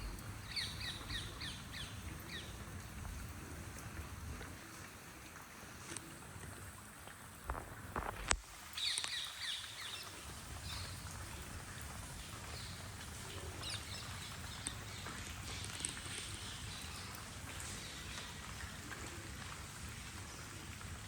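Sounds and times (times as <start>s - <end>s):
birds chirping: 0.0s - 2.6s
steady rain: 0.0s - 21.0s.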